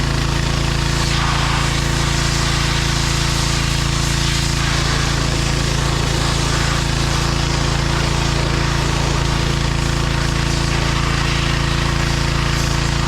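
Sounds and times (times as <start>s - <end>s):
tractor diesel engine running: 4.9s - 13.0s.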